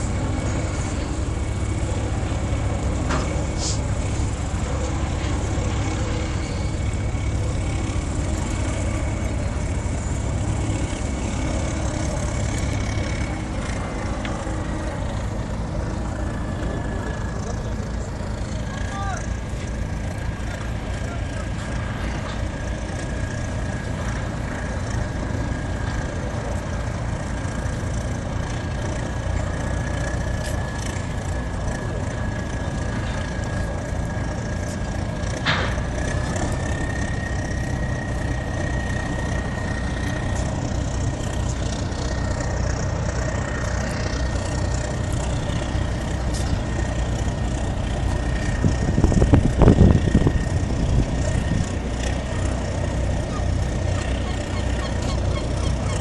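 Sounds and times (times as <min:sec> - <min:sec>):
boat diesel engine rumbling: 0:00.0 - 0:56.0
thin engine whine: 0:00.0 - 0:56.0.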